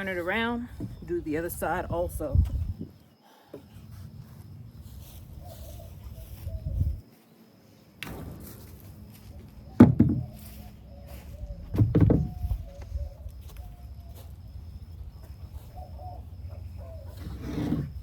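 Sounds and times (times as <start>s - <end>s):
wood knocking: 9.8s - 10.4s, 11.7s - 12.4s.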